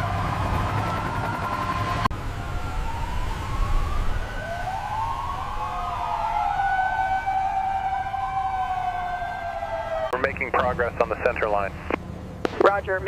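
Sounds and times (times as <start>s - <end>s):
emergency siren wailing: 0.0s - 12.2s.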